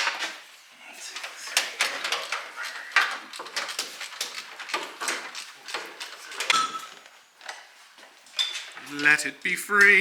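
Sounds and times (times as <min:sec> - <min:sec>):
parts clicking and rattling: 0:01.2 - 0:09.2.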